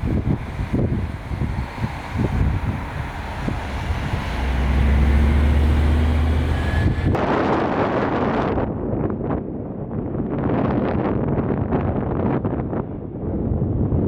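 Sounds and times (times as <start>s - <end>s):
steady low motor hum: 0.0s - 8.8s
wind buffeting microphone: 0.0s - 14.0s.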